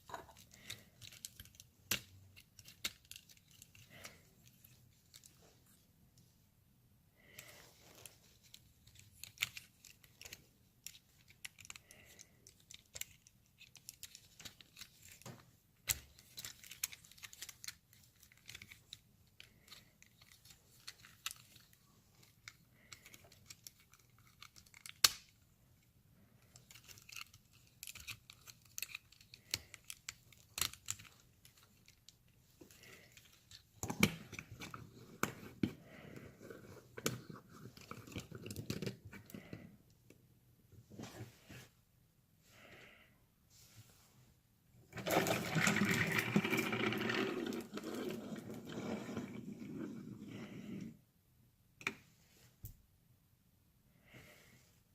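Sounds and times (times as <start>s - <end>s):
plastic parts clicking and snapping: 0.0s - 5.4s, 8.3s - 25.4s, 26.4s - 39.7s.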